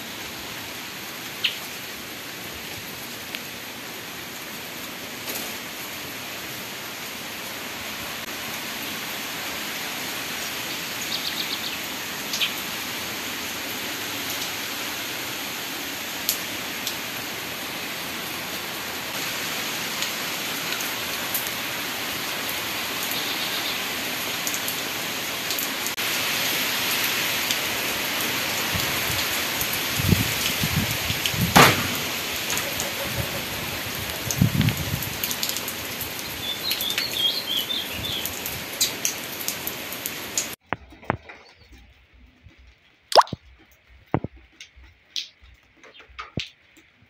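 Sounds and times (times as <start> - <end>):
heavy rain on a tile roof: 0.0 - 47.0
close drips: 43.1 - 43.4.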